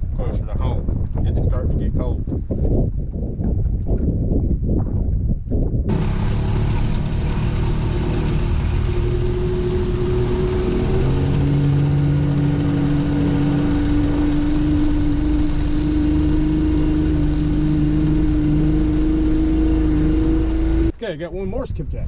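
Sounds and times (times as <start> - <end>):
boat engine running: 5.9 - 21.0.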